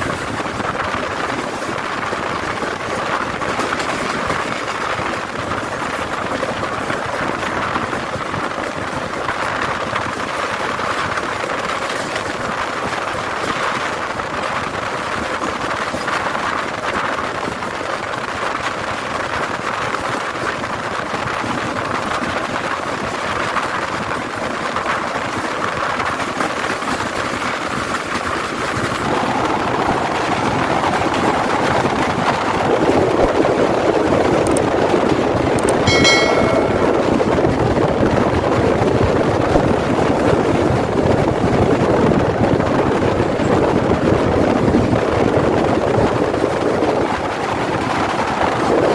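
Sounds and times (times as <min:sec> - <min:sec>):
train wheels on rails: 0:00.0 - 0:30.4.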